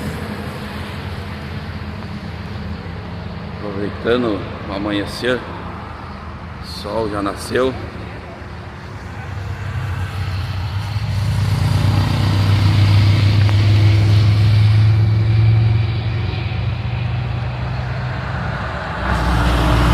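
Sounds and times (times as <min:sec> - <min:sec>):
vehicle engine passing by: 0:09.0 - 0:19.9.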